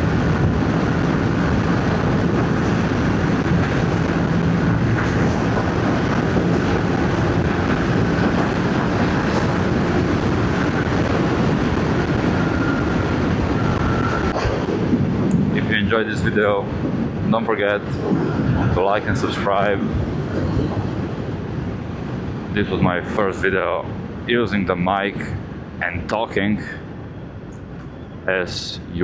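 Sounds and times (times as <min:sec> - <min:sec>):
wind rushing over microphone: 0:00.0 - 0:29.0.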